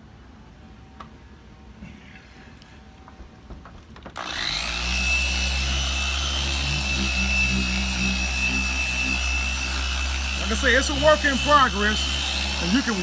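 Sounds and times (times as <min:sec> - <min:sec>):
power tool motor whining: 0:04.2 - 0:13.0.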